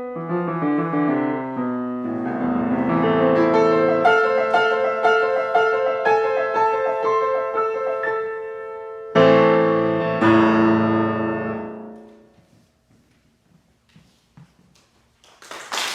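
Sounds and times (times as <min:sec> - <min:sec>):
solo piano chords: 0:00.0 - 0:12.4.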